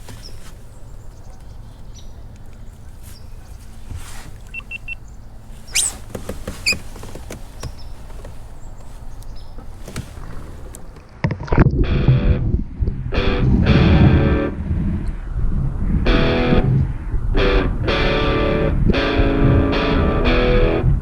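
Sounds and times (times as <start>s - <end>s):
short high chirps: 4.4s - 5.0s.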